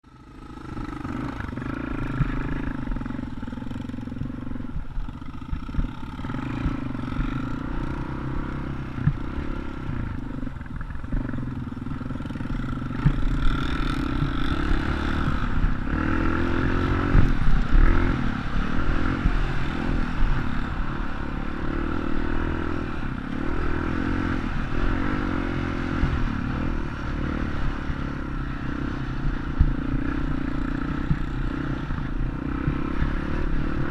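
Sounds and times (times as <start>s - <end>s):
dirt bike engine revving: 0.1s - 33.9s.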